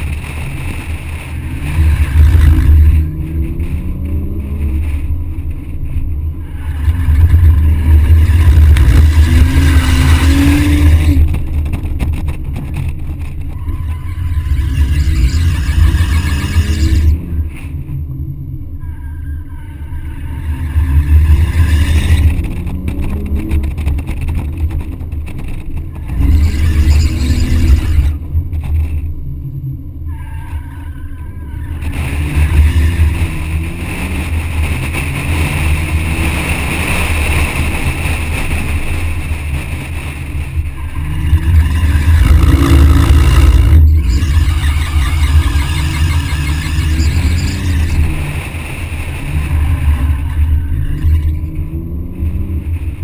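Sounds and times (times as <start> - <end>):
car engine revving: 0.0 - 18.7, 19.9 - 29.1, 31.7 - 53.0
tyres squealing: 40.7 - 48.3.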